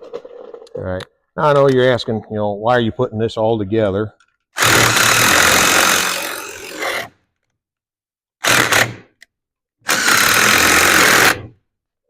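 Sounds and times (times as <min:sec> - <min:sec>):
power tool fastening bolts: 0:04.6 - 0:07.1, 0:08.4 - 0:11.5.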